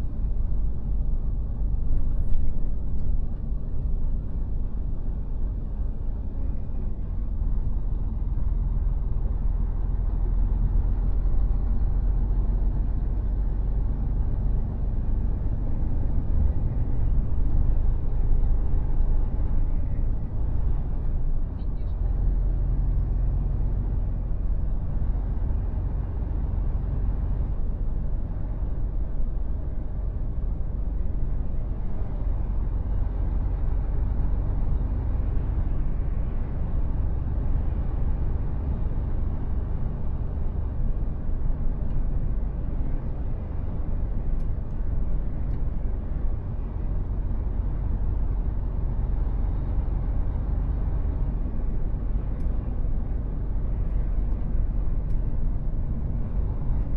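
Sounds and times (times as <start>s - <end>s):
truck engine rumbling: 0.0s - 56.9s.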